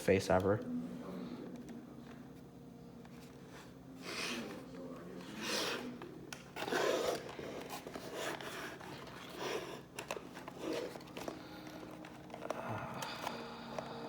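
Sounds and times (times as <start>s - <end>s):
plastic and cardboard rustling: 3.0s - 14.0s.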